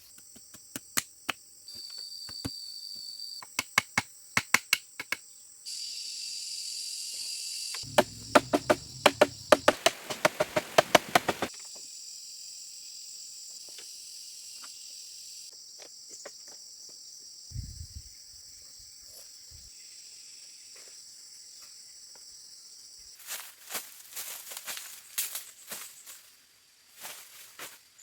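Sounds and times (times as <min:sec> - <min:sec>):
insects chirring: 0:07.6 - 0:11.5
low thud: 0:07.8 - 0:11.5
sharp knocks: 0:07.8 - 0:11.5.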